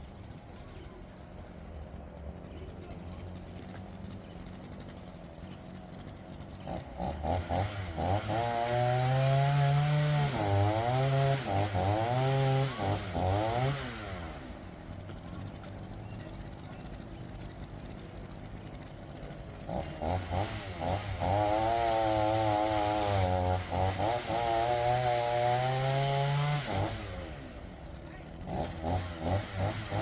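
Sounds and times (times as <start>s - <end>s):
chainsaw idling: 0.0s - 30.0s
chainsaw cutting into log: 6.6s - 14.8s, 19.6s - 30.0s.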